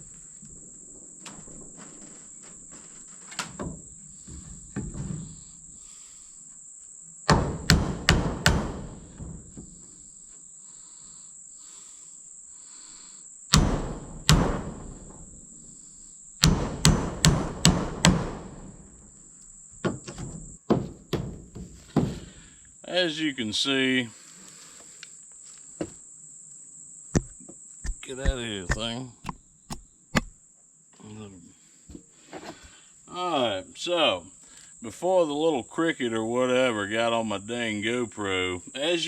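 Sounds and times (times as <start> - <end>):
cricket chirping: 9.6 - 16.6
hammer striking lumber: 27.9 - 30.3.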